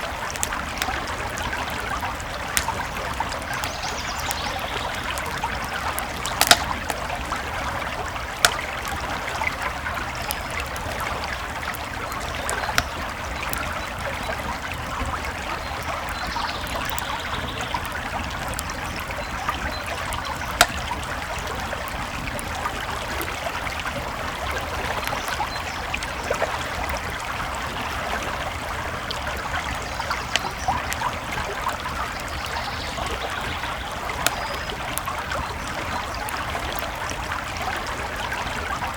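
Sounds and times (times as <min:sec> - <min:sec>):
campfire crackling and popping: 0:00.0 - 0:38.9
creek babbling: 0:00.0 - 0:38.9.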